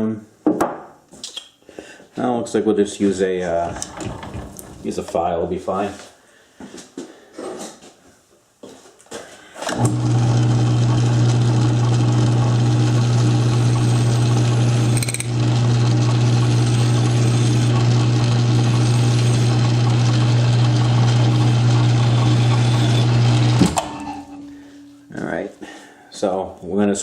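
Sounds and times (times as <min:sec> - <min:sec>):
lathe running with low hum: 0:09.7 - 0:24.5.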